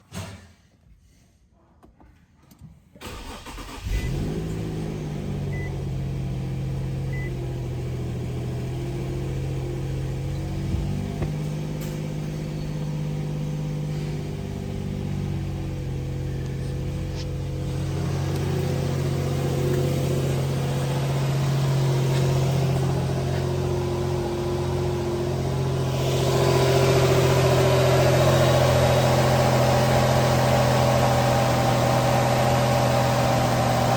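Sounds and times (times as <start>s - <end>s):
car engine starting and idling: 3.0s - 33.9s.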